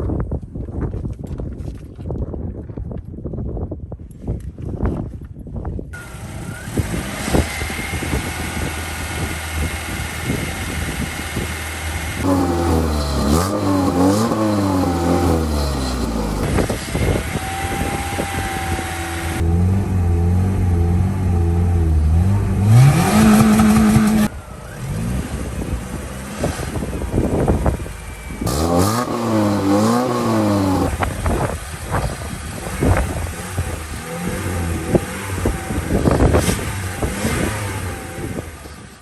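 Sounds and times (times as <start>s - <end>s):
car engine revving: 6.0s - 39.0s.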